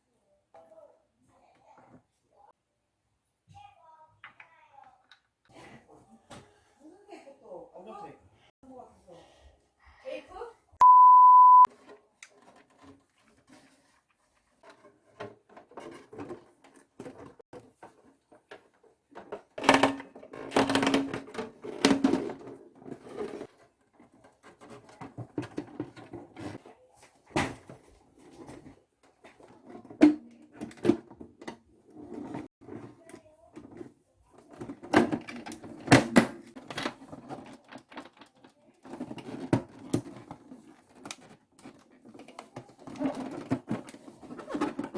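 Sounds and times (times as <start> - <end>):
short loud beep: 10.8 - 11.7.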